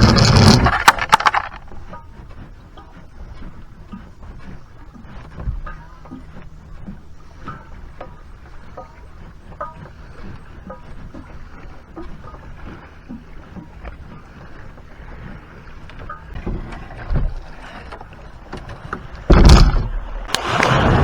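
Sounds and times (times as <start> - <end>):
quiet water noise: 0.0 - 21.0
paddle knocking on hull: 3.8 - 20.8
loud splashing: 19.3 - 21.0.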